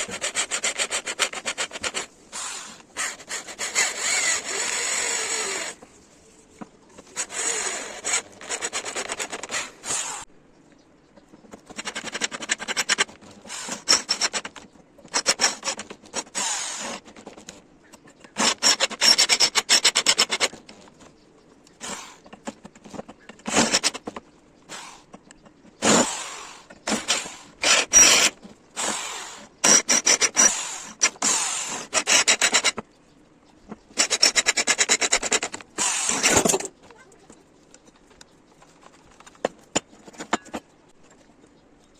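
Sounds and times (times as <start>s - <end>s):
abrasive tool rasping on metal: 0.0s - 5.8s, 18.4s - 20.5s, 25.8s - 32.8s, 34.0s - 36.6s.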